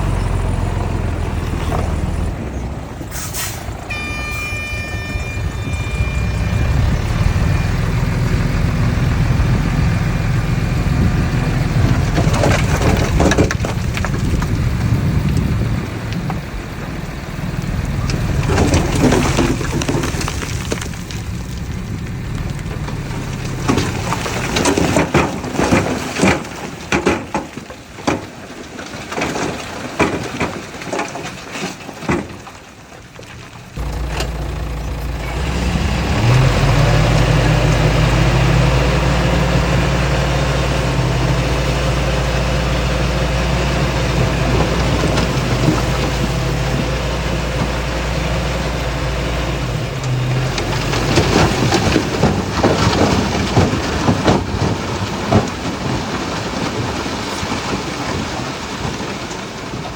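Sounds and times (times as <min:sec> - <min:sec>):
diesel engine rumbling: 0:00.0 - 0:28.0, 0:33.0 - 0:59.9
soil and debris crunching: 0:00.0 - 0:59.9.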